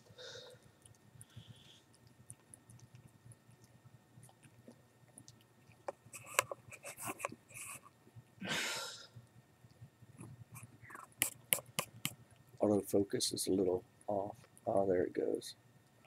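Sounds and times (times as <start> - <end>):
cat licking in a jar: 0.5 - 8.0
loud breath: 8.4 - 9.2.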